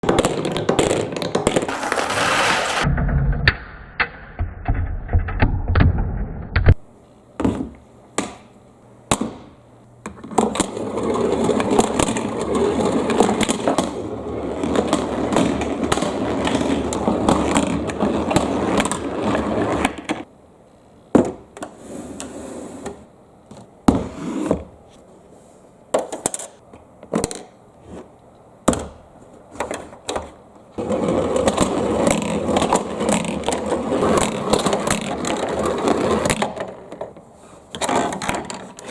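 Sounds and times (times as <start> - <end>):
marbles rolling on track: 1.2 - 2.9.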